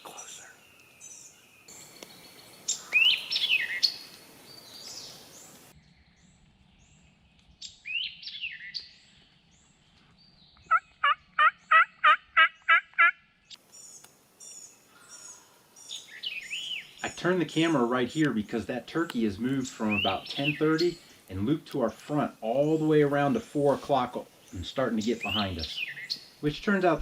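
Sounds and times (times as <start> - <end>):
wild turkey calling: 0.0 - 5.7, 10.7 - 27.0
small birds chirping faintly: 0.0 - 27.0
turkey yelps: 10.7 - 13.2.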